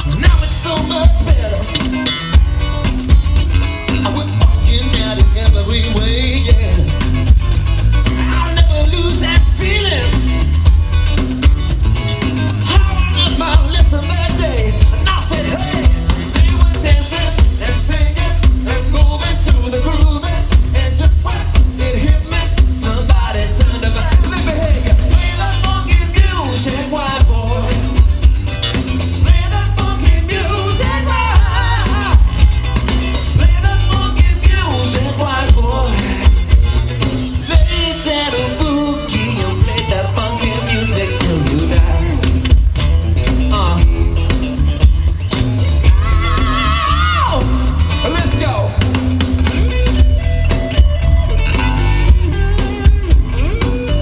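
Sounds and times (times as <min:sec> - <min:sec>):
drums: 0:00.0 - 0:54.0
electric bass: 0:00.0 - 0:54.0
live rock band playing: 0:00.0 - 0:54.0
person singing: 0:12.6 - 0:28.2, 0:29.2 - 0:36.8, 0:37.4 - 0:42.5, 0:45.8 - 0:48.9.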